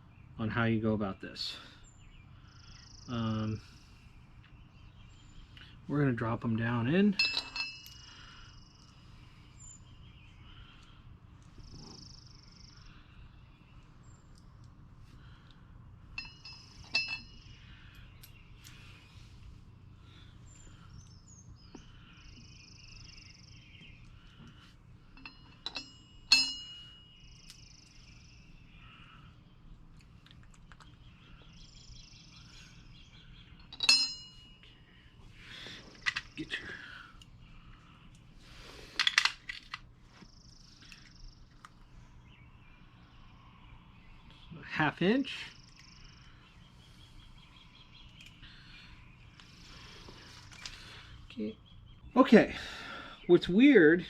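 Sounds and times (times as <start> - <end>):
birds chirping: 0.0 - 54.0
metal parts rattling: 7.1 - 8.0, 16.2 - 17.4, 25.1 - 26.9, 33.6 - 34.4, 35.9 - 36.5, 39.0 - 39.8
metal hardware clinking: 7.1 - 8.1, 16.1 - 17.5, 25.1 - 27.6, 33.6 - 34.6.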